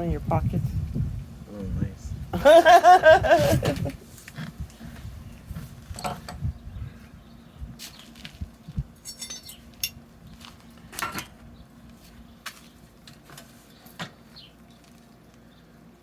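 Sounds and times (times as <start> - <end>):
metal tools clinking: 9.0 - 10.0.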